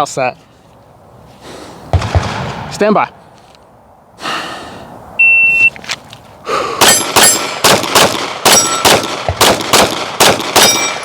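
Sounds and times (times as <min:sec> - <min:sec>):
pistol shots: 0:01.9 - 0:02.7, 0:06.8 - 0:11.0
shot timer beep: 0:05.2 - 0:05.7
bullets ringing steel target: 0:06.8 - 0:11.0.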